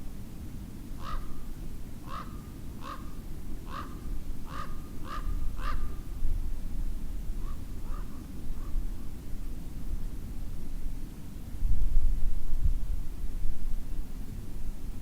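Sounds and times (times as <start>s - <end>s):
bird giving harsh calls: 1.0s - 1.2s, 2.1s - 3.0s, 3.7s - 3.9s, 4.5s - 5.8s.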